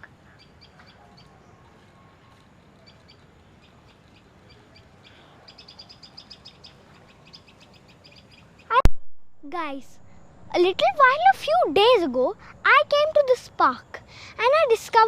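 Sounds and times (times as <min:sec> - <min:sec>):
small songbirds chirping: 0:00.0 - 0:08.8.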